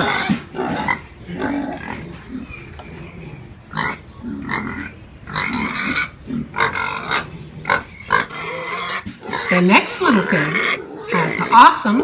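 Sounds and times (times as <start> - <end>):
piglet calls: 3.8 - 12.0.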